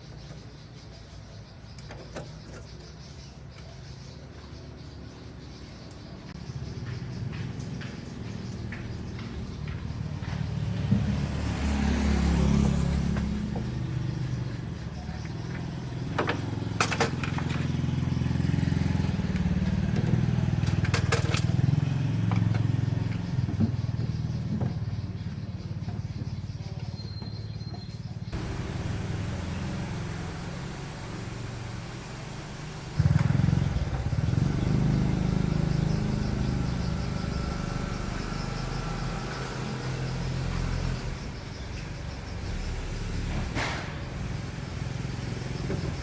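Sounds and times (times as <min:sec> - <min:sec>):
car engine revving: 0:06.3 - 0:25.1, 0:28.3 - 0:46.0.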